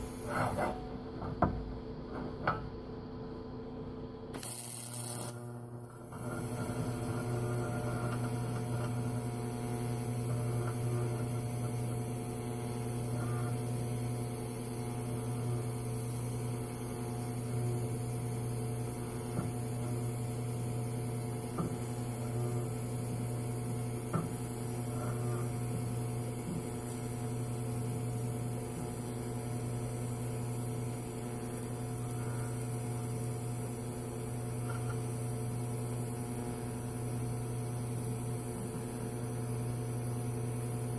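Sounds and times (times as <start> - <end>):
welder humming: 0.0 - 0.8, 4.3 - 40.9.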